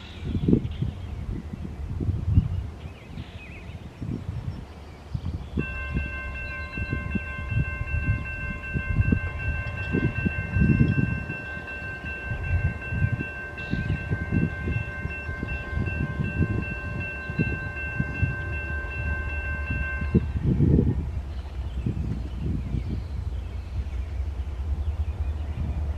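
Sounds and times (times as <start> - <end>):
train rumbling: 0.0 - 25.9
wind buffeting microphone: 0.0 - 25.9
locomotive air horn: 5.6 - 20.4.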